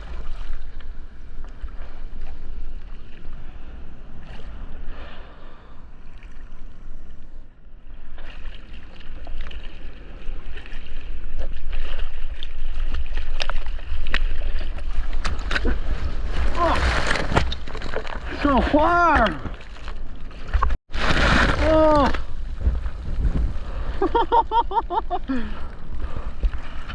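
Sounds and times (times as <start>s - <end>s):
ocean water splashing: 0.0s - 21.6s
wind on microphone: 21.3s - 24.3s.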